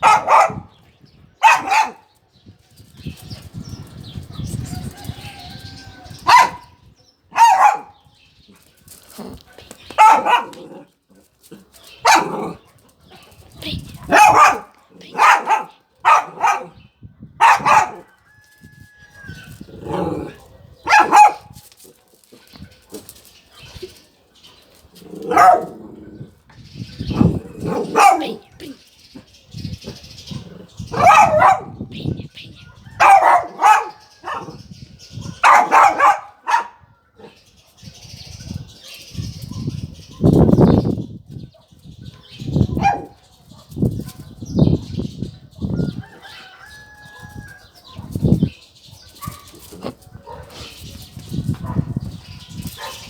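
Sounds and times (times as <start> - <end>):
dog barking: 0.0 - 0.7, 1.4 - 2.1, 6.2 - 8.0, 9.6 - 10.8, 12.0 - 12.6, 14.0 - 18.1, 20.2 - 21.6, 25.2 - 25.8, 27.2 - 28.5, 30.9 - 31.8, 32.6 - 34.6, 35.2 - 37.4, 42.7 - 44.4, 49.1 - 50.7, 51.6 - 52.0, 52.8 - 53.0.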